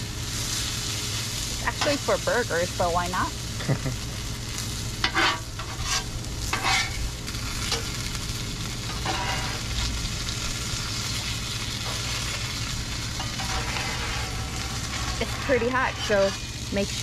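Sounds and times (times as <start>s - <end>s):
sausages sizzling on a griddle: 0.0s - 17.0s
metal spatula scraping: 5.0s - 7.0s, 8.9s - 10.0s, 11.2s - 17.0s.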